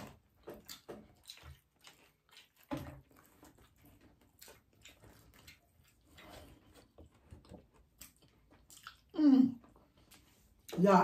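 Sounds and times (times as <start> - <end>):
people chewing: 0.0 - 10.8.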